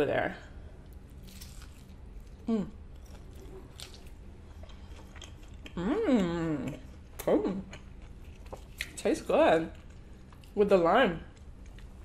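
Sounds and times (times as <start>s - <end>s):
person chewing crunchy food: 0.8s - 5.8s, 6.6s - 9.0s.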